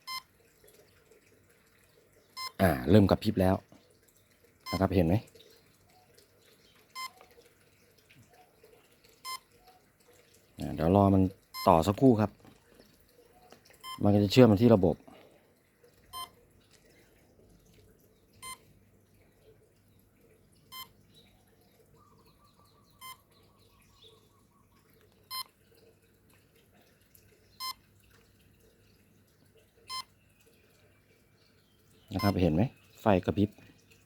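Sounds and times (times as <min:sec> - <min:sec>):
short electronic beeps: 0:00.0 - 0:00.3, 0:02.4 - 0:02.6, 0:07.0 - 0:07.2, 0:09.2 - 0:09.5, 0:11.5 - 0:11.8, 0:13.8 - 0:14.0, 0:16.1 - 0:16.3, 0:18.4 - 0:18.6, 0:20.7 - 0:20.9, 0:23.0 - 0:23.2.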